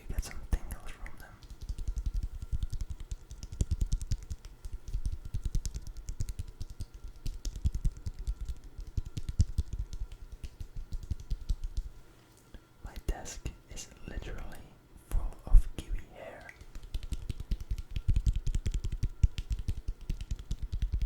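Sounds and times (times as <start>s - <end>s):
rapid tapping and clicking: 0.6s - 11.9s, 16.4s - 21.0s.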